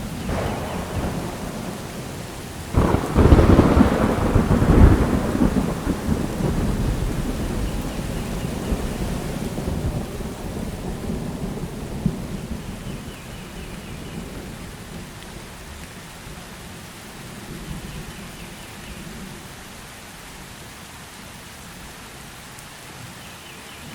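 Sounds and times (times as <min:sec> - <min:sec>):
thunder clap and rumble: 0:00.0 - 0:15.7
steady rain falling: 0:00.0 - 0:23.9.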